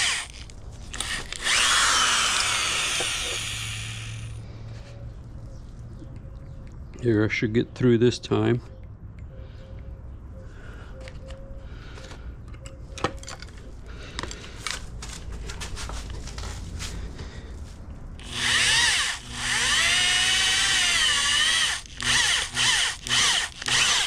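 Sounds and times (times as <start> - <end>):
electric drill boring into metal: 0.0 - 4.4, 18.2 - 24.0.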